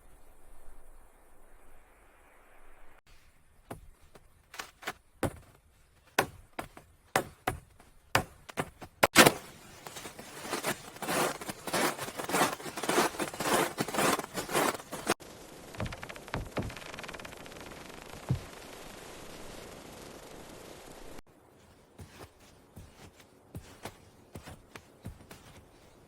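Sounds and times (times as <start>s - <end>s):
crunching strokes: 3.8s - 15.2s
sharp knocks: 6.2s - 9.5s, 15.8s - 16.8s.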